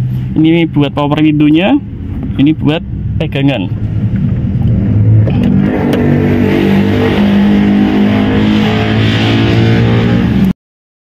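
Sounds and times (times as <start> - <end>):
car engine running: 0.0 - 10.5.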